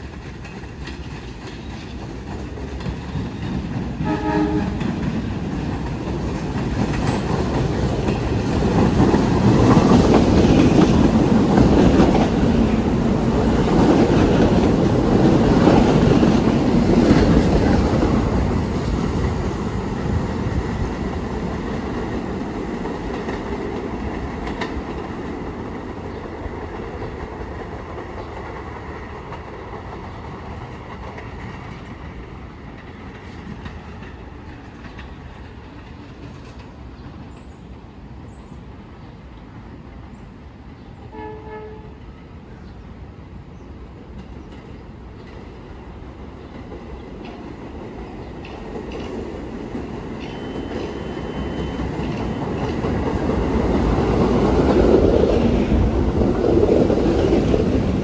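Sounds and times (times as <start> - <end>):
train wheels clattering over rail joints: 0.0 - 20.2
train horn blast: 4.0 - 5.0, 41.1 - 42.0.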